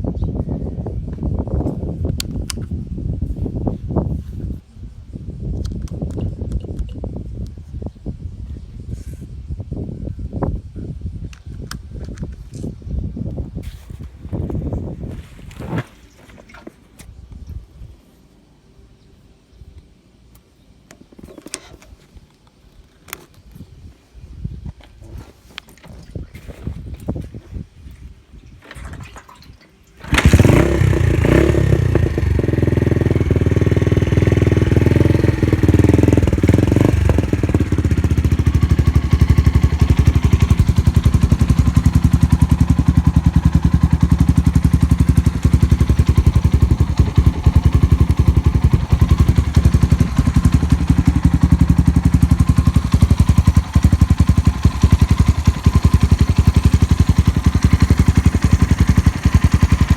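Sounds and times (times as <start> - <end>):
single-cylinder engine idling: 30.0 - 59.9.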